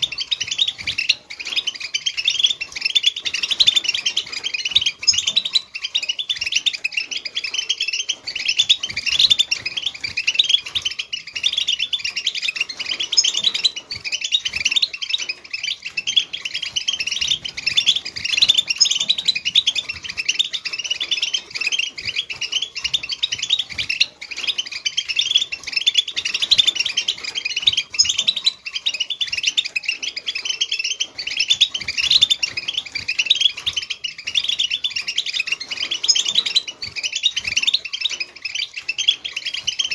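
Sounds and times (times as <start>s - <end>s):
goldfinch twittering: 0.0s - 39.9s.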